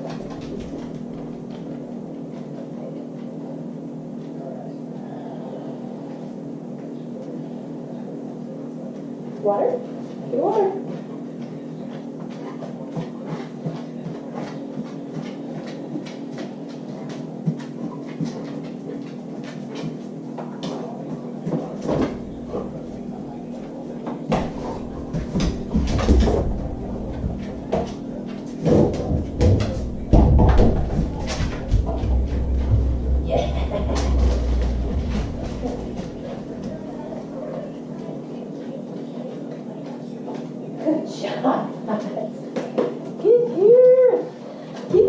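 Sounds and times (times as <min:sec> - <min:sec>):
fridge door knocks and thumps: 0:28.6 - 0:36.8.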